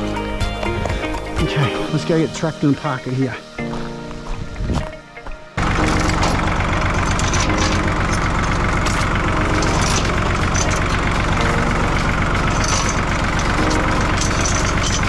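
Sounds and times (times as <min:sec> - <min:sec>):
tractor engine running: 0:05.6 - 0:15.0.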